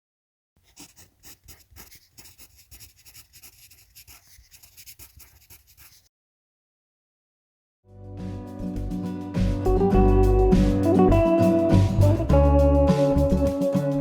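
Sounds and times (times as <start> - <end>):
scratchy rustling strokes: 0.6 - 6.1.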